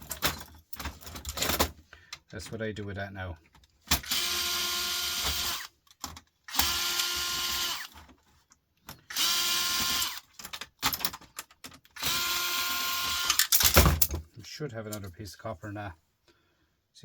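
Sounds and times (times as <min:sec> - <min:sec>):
cordless drill whining: 0:04.0 - 0:05.7, 0:06.5 - 0:08.0, 0:09.1 - 0:10.3, 0:12.0 - 0:13.5.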